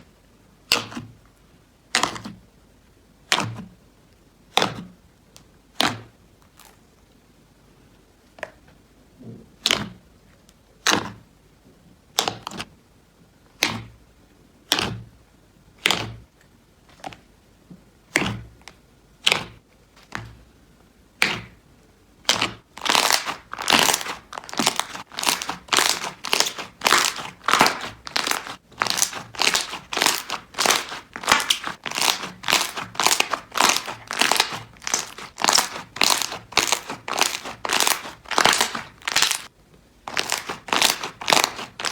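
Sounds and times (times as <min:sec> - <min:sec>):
slime squishing by hand: 0:00.6 - 0:01.3, 0:01.9 - 0:02.4, 0:05.7 - 0:06.8, 0:09.4 - 0:10.1, 0:10.8 - 0:11.3, 0:12.1 - 0:12.7, 0:13.5 - 0:14.0, 0:14.6 - 0:15.2, 0:15.8 - 0:17.3, 0:18.0 - 0:39.5, 0:40.1 - 0:41.9.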